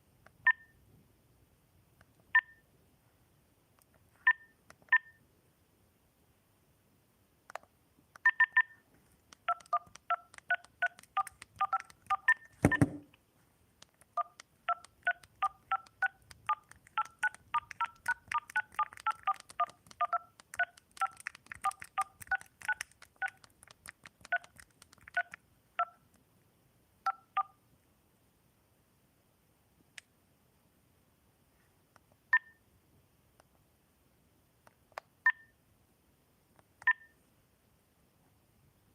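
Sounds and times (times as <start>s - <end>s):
phone keypad touch-tone beeps: 2.4s - 2.6s, 4.3s - 5.2s, 8.2s - 8.8s, 9.5s - 13.0s, 14.2s - 23.4s, 32.4s - 32.6s, 35.3s - 35.5s, 36.8s - 37.1s.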